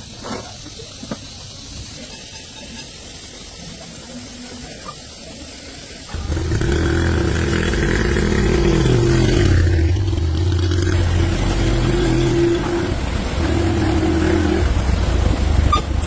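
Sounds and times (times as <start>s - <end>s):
tractor engine running: 6.1s - 16.0s.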